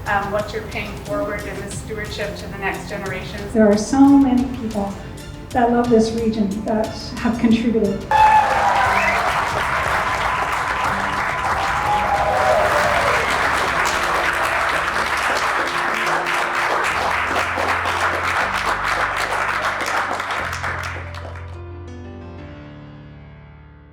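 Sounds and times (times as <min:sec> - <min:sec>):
background music: 0:00.0 - 0:23.5
audience applauding: 0:08.1 - 0:21.6.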